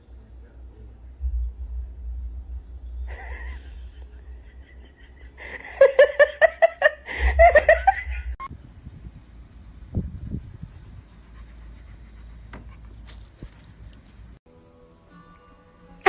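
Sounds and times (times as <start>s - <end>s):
person laughing: 3.1s - 8.5s.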